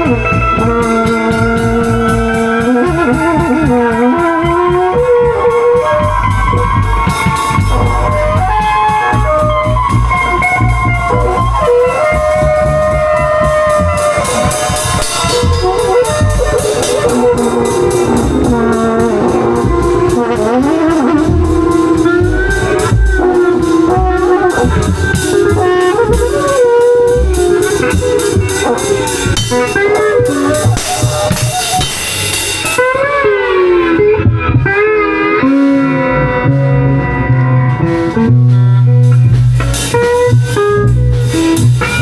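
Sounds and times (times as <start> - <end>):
steady drum beat: 0.0 - 33.2, 37.8 - 42.0
horn playing melodic line: 0.0 - 42.0
walking bass line: 0.0 - 42.0.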